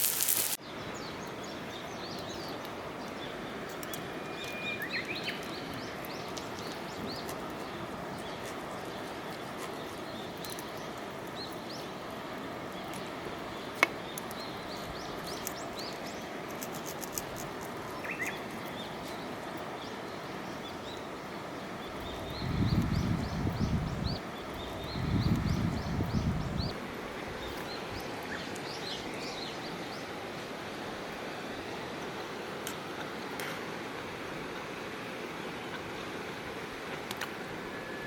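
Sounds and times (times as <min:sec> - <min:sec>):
birds chirping: 0:00.0 - 0:08.5.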